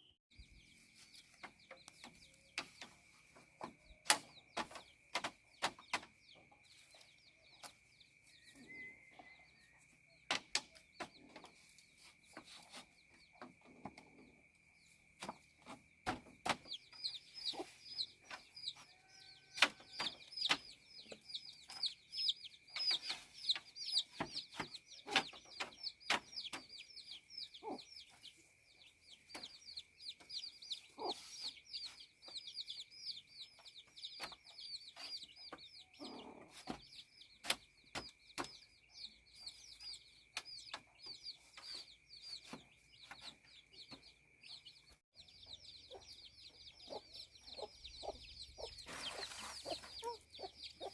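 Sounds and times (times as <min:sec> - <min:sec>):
chickens clucking: 0:10.3 - 0:50.9.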